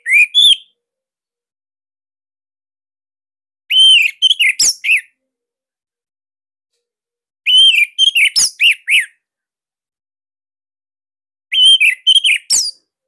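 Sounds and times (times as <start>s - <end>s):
thrush singing whistled notes: 0.0s - 0.7s, 3.7s - 5.1s, 7.5s - 9.2s, 11.5s - 12.8s.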